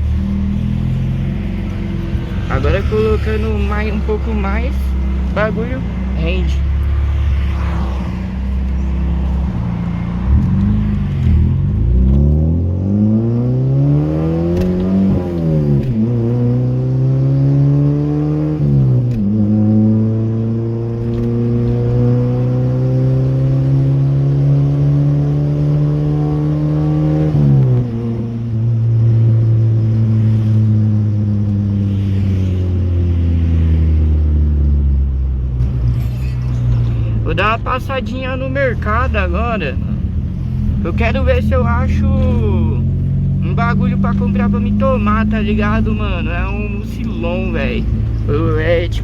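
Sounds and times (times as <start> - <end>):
car engine accelerating: 0.0 - 49.0.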